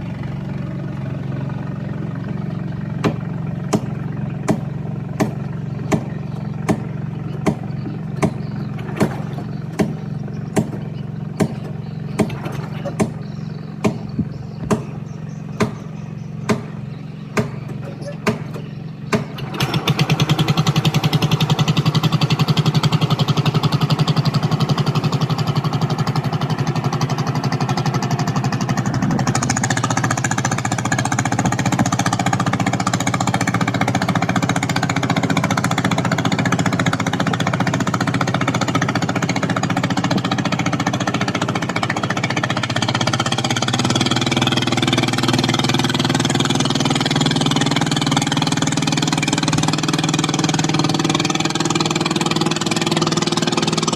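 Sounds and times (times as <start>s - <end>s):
small boat engine chugging: 0.0s - 53.9s.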